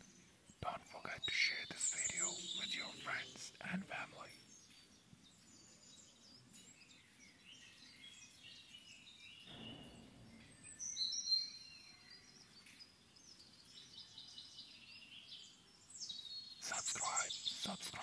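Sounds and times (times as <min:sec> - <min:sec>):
faint steady hiss: 0:00.0 - 0:08.4, 0:14.8 - 0:18.0
birds chirping: 0:00.0 - 0:18.0.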